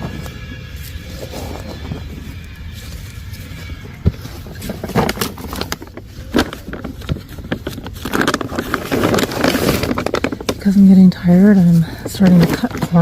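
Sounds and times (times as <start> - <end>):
digging tool scraping soil: 4.1 - 13.0.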